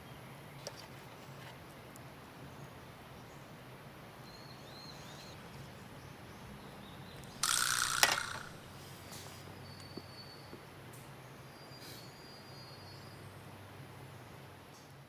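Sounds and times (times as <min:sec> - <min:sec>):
rasping mechanical sound with click: 0:07.2 - 0:08.6.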